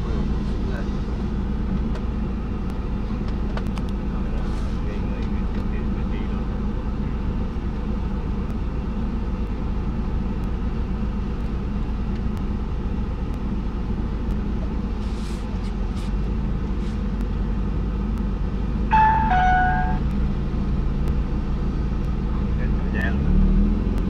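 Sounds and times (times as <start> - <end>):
car engine idling: 0.0 - 23.2
two-note electronic beep: 18.9 - 20.1.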